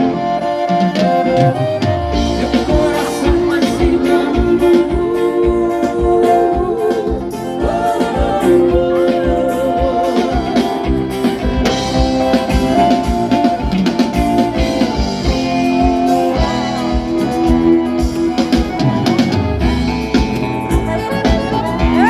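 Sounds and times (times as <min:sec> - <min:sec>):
drum kit beat: 0:00.0 - 0:22.0
guitar lines: 0:00.0 - 0:22.0.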